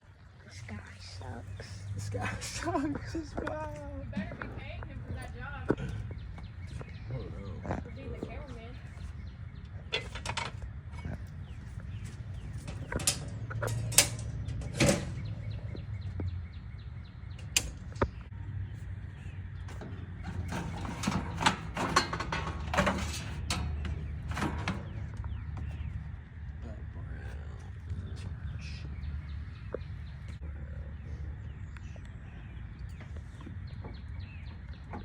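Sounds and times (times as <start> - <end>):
low steady rumble: 0.0 - 35.0
sharp clicks and knocks: 12.0 - 16.4, 17.3 - 18.3, 19.6 - 25.9.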